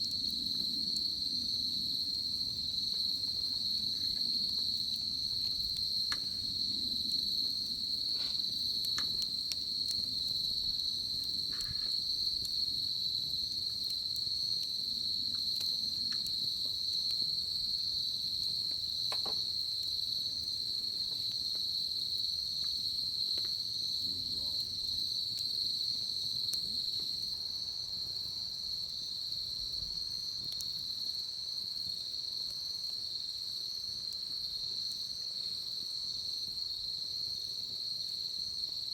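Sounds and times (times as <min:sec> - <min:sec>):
insects trilling: 0:00.0 - 0:38.9
wood fire crackling: 0:00.0 - 0:38.9.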